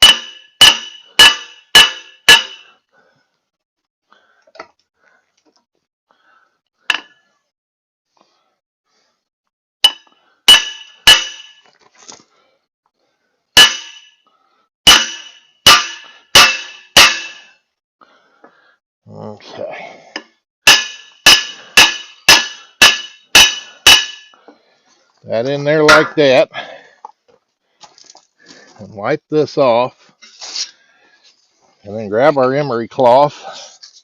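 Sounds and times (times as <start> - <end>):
hammer striking metal: 0.0 - 2.7, 9.8 - 11.6, 13.6 - 14.2, 14.9 - 17.6, 20.7 - 24.4, 25.8 - 26.2.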